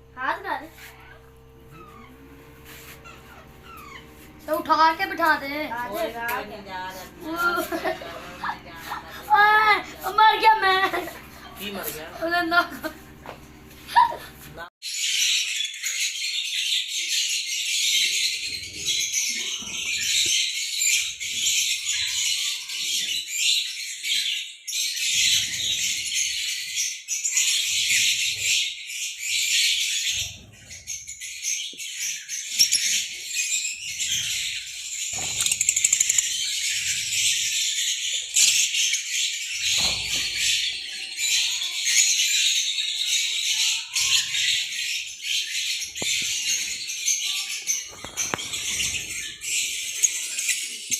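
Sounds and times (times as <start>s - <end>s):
lovebirds chirping: 0.0s - 12.9s, 25.0s - 50.9s.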